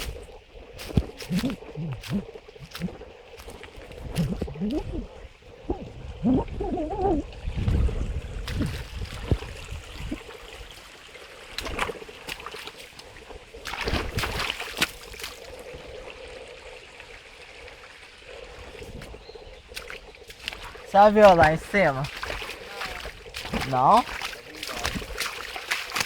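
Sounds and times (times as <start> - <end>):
stream water splashing: 0.0 - 26.0.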